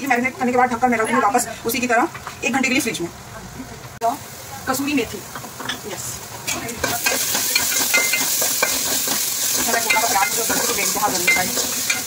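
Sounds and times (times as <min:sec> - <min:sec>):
onions sizzling in oil: 0:04.0 - 0:12.0.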